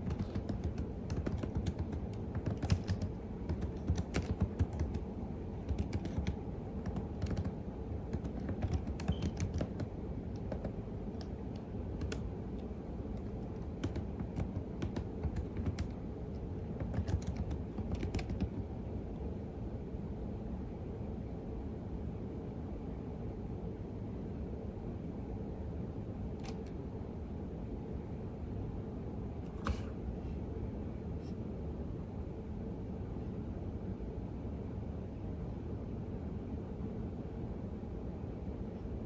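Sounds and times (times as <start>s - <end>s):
computer keyboard typing: 0.0s - 18.7s
low background rumble: 0.0s - 39.0s.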